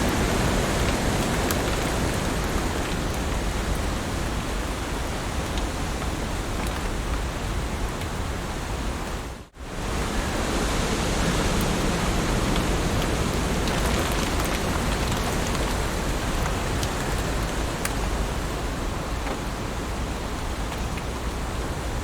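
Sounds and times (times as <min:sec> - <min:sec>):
raindrop ticks: 0:00.0 - 0:08.2, 0:11.5 - 0:19.6, 0:20.3 - 0:21.4
heavy rain falling: 0:00.0 - 0:22.0.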